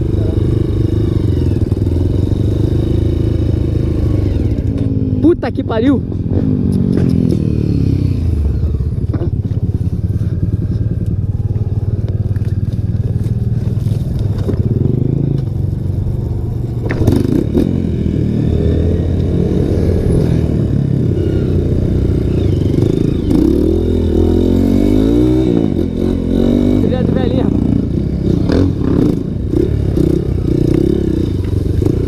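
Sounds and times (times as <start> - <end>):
motorcycle engine running: 0.0 - 32.0
motorcycle knocks and clatters: 10.6 - 15.8, 16.7 - 17.6.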